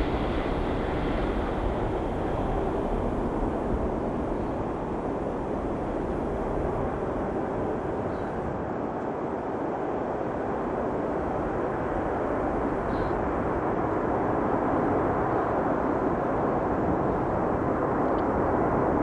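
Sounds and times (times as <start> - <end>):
jet airliner engines rushing: 0.0 - 10.0.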